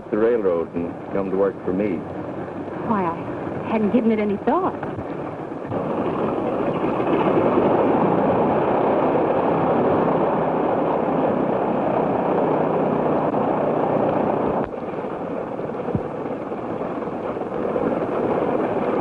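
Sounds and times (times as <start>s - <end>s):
propeller airplane engine: 0.0s - 19.0s.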